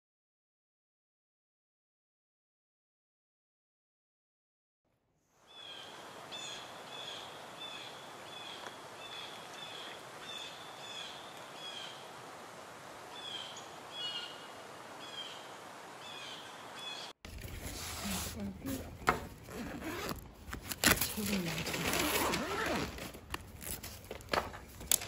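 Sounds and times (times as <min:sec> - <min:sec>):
steady outdoor hiss: 0:05.3 - 0:25.0.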